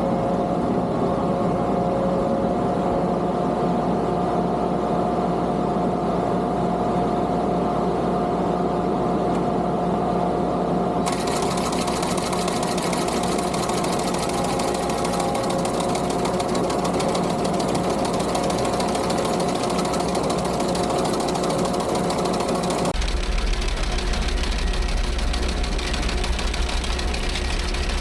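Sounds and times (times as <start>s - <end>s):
skid steer engine running: 11.0s - 28.0s.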